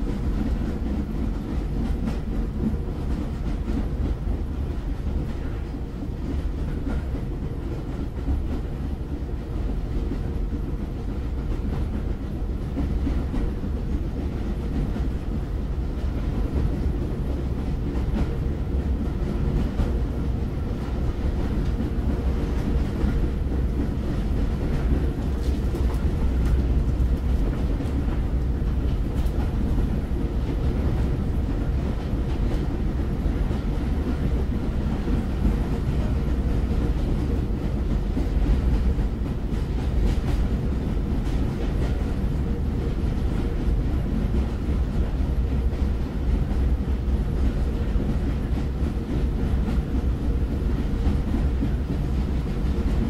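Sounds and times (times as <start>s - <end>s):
train rumbling: 0.0s - 53.0s
faint rail clicks: 16.0s - 53.0s.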